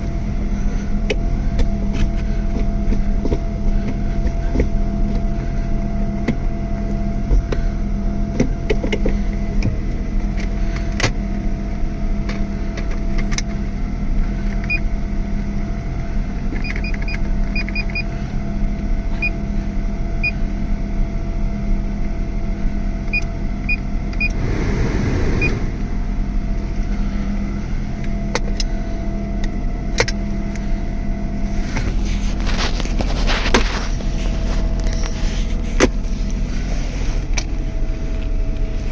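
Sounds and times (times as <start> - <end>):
rush of noise: 24.2 - 26.9.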